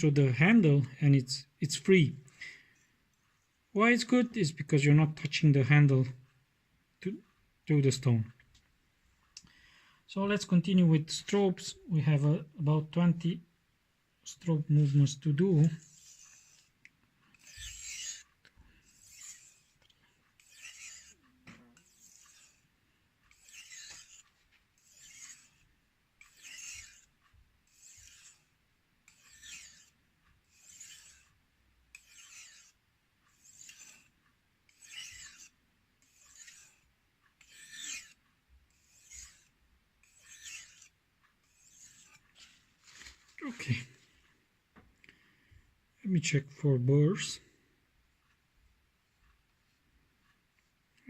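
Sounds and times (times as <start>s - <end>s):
knife strokes on whetstone: 14.4s - 28.5s, 29.1s - 43.2s.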